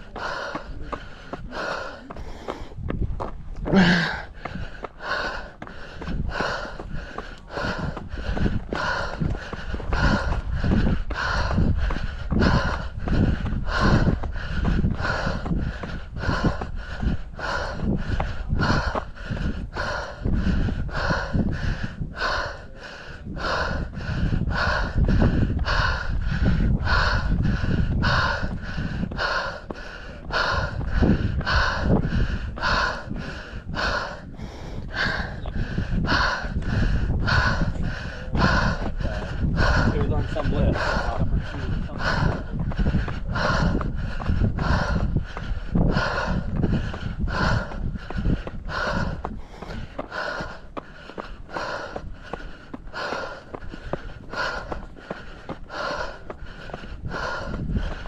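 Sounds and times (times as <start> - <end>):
footsteps: 0.0 - 21.4, 36.1 - 58.0
person breathing heavily: 0.0 - 58.0
runner panting hard: 0.0 - 58.0
wind rumbling on microphone: 0.0 - 58.0.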